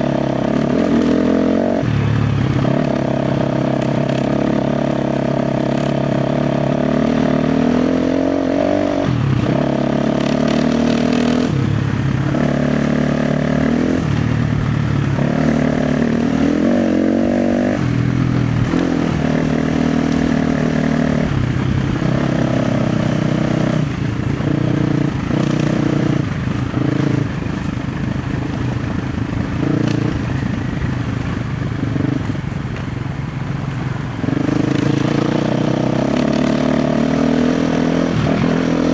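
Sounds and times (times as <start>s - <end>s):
dirt bike engine revving: 0.0s - 32.6s, 33.7s - 38.9s
rattles and knocks from bike: 17.9s - 36.5s.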